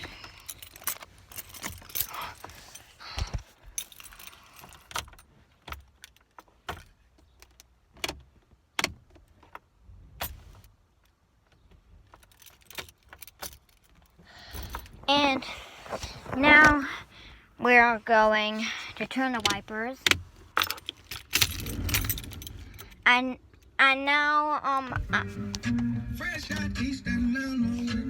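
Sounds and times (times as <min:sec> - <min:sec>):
car keys jangling: 0:00.0 - 0:15.0, 0:19.4 - 0:23.0.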